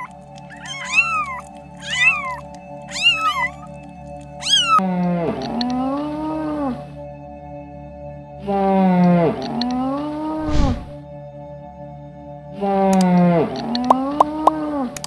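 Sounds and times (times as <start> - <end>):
kittens meowing: 0.0 - 4.8
background music drone: 0.0 - 15.0
moose moaning call: 8.4 - 10.5.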